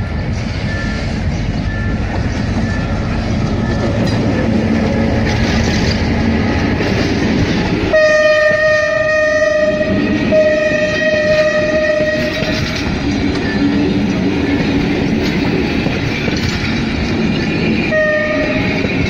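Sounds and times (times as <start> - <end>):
wheel-and-rail rumble and clatter: 0.0 - 8.7, 9.4 - 19.0
diesel locomotive passing: 0.0 - 19.0
short beeps: 0.6 - 4.0
loud train horn: 7.9 - 12.9, 17.8 - 19.0.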